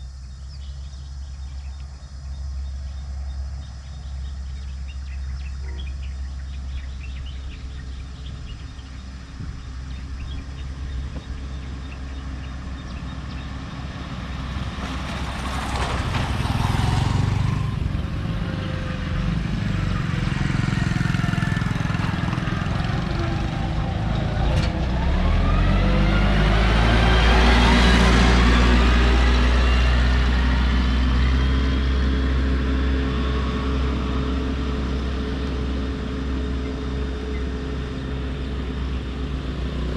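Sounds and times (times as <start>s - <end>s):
diesel engines rumbling: 0.0s - 39.9s
rising whines: 14.9s - 39.9s.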